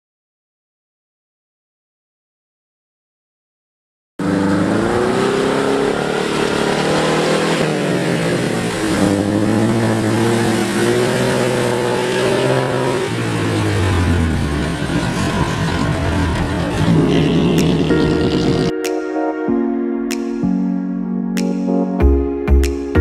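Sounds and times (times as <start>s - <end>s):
car driving through mud and water: 4.2s - 18.7s
car engine revving: 4.2s - 18.7s.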